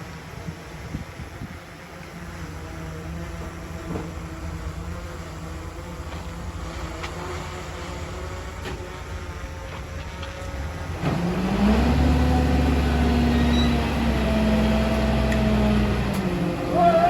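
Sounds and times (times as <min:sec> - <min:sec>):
heavy diesel engine running: 0:08.3 - 0:17.0.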